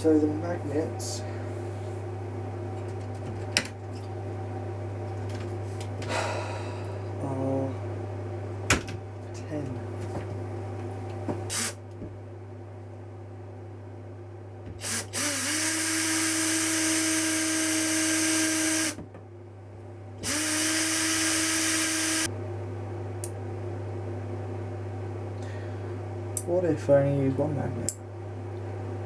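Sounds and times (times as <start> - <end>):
electric drill drilling into plastic: 11.5 - 11.8, 14.8 - 19.0, 20.2 - 22.3.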